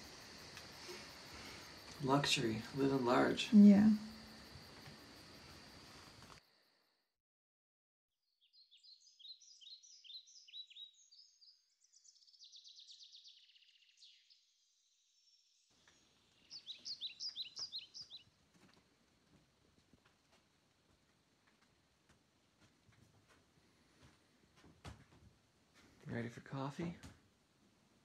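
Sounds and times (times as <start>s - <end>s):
songbirds singing: 8.4s - 14.5s, 15.2s - 18.4s.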